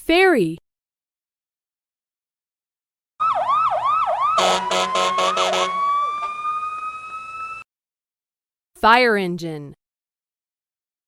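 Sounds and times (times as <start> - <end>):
fire engine siren: 3.2 - 7.7
air horn blasts: 4.4 - 5.9.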